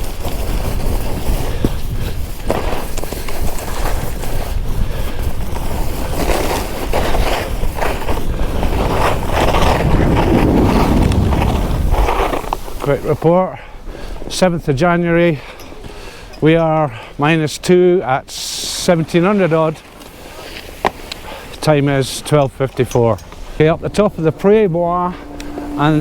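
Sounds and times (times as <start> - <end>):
skis scraping over snow: 0.0 - 4.6, 5.3 - 13.3
wind rushing over microphone: 4.0 - 13.3.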